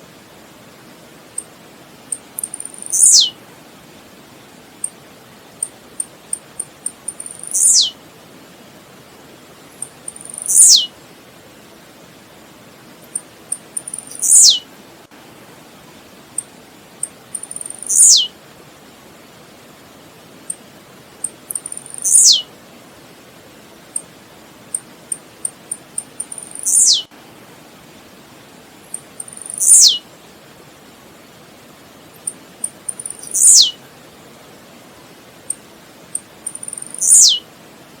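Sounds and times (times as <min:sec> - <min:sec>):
background hiss: 0:00.0 - 0:38.0
bird singing falling notes: 0:13.9 - 0:14.6, 0:26.3 - 0:27.1, 0:36.8 - 0:37.4.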